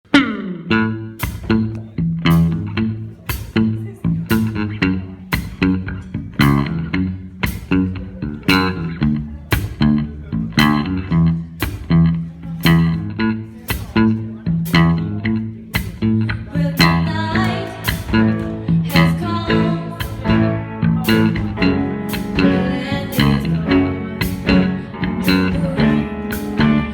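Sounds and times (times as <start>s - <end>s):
electric bass: 0.0s - 26.9s
band playing: 0.2s - 26.9s
drum beat: 16.8s - 23.6s.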